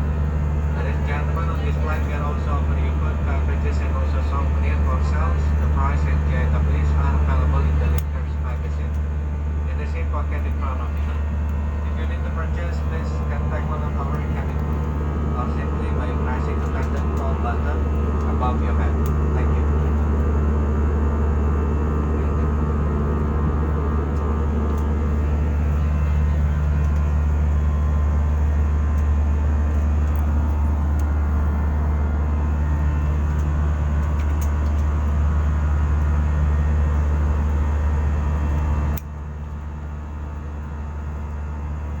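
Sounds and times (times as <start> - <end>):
airliner cabin engine drone: 0.0 - 42.0.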